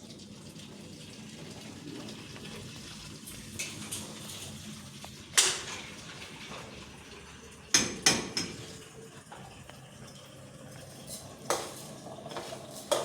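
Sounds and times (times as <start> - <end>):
kitchenware clattering: 5.4 - 6.7, 7.7 - 8.8, 11.0 - 13.0.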